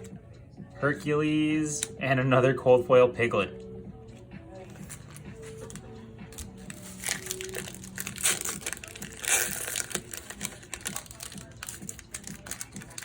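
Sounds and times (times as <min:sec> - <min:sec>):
foil wrapper crinkling and tearing: 0:06.7 - 0:13.0.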